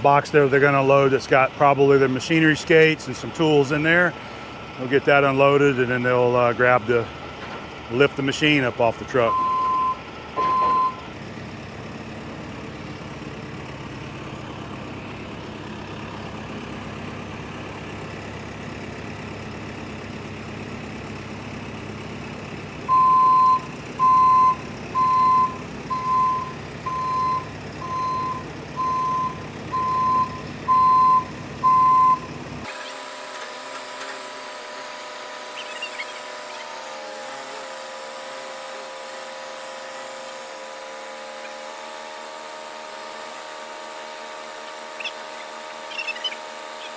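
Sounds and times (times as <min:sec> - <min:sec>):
heavy vehicle engine running: 0:00.0 - 0:46.9
reversing alarm beeps: 0:09.3 - 0:11.0, 0:22.9 - 0:32.4.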